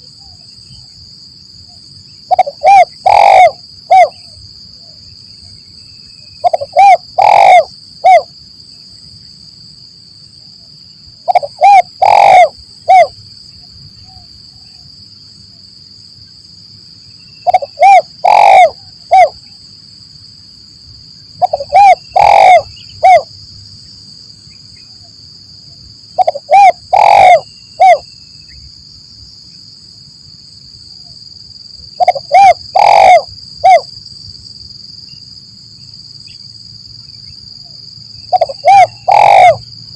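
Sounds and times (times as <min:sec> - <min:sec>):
high insect whine: 0:00.0 - 0:39.9
dove cooing: 0:02.3 - 0:04.3, 0:06.4 - 0:08.3, 0:11.2 - 0:13.1, 0:17.4 - 0:19.4, 0:21.4 - 0:23.3, 0:26.2 - 0:28.0, 0:32.0 - 0:33.9, 0:38.3 - 0:39.7.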